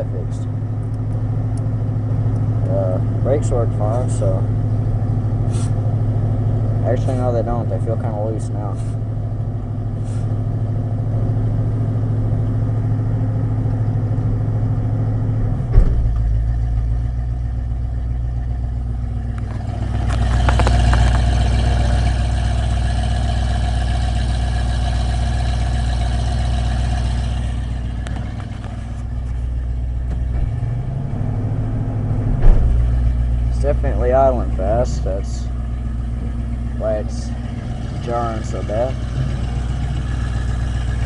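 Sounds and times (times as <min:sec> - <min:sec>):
truck engine running: 0:00.0 - 0:41.0
sharp clunk: 0:15.5 - 0:16.5, 0:32.2 - 0:33.0.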